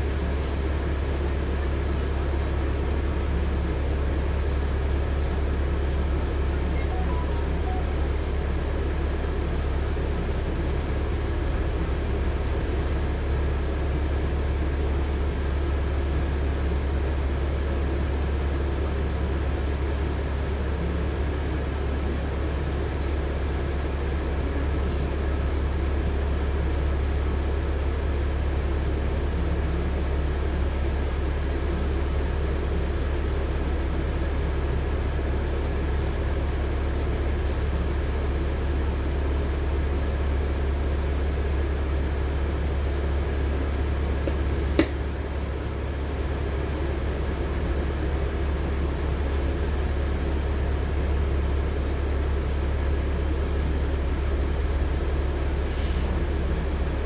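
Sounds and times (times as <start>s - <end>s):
bus engine hum: 3.9s - 15.0s.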